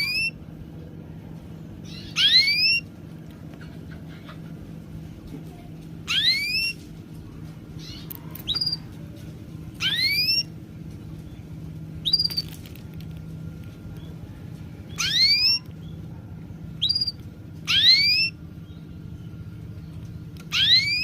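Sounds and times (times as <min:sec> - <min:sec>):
bird whistling rising calls: 0:00.0 - 0:00.4, 0:01.8 - 0:02.9, 0:06.1 - 0:06.8, 0:07.8 - 0:08.8, 0:09.8 - 0:10.5, 0:12.0 - 0:12.5, 0:14.9 - 0:15.7, 0:16.8 - 0:18.4, 0:20.5 - 0:21.0
faint low hum: 0:00.0 - 0:21.0.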